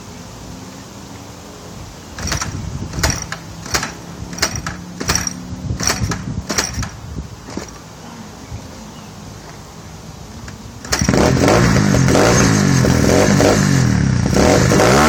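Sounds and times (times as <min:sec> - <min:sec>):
sharp mechanical clacks: 0:02.2 - 0:07.9, 0:10.4 - 0:13.5.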